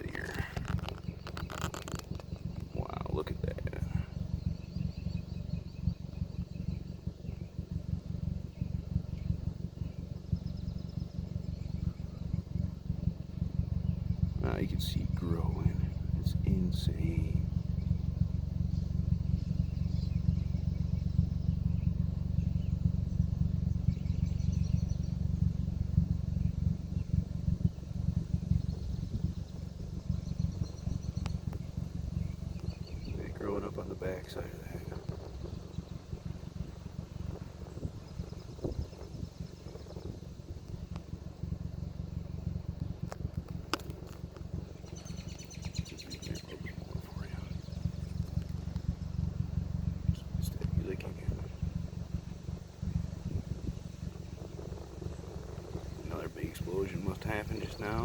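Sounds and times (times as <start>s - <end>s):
sharp clicks: 0.0s - 3.9s, 31.0s - 31.7s, 42.8s - 49.0s
wind buffeting microphone: 0.0s - 58.0s.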